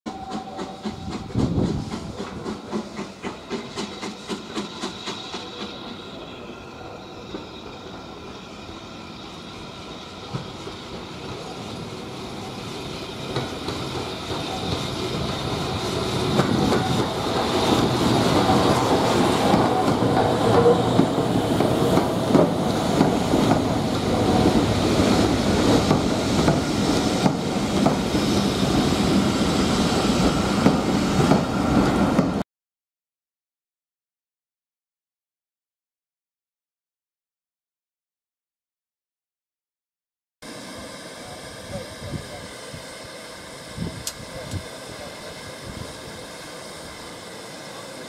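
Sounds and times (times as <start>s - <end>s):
train carriages rattling on track: 0.1s - 32.4s.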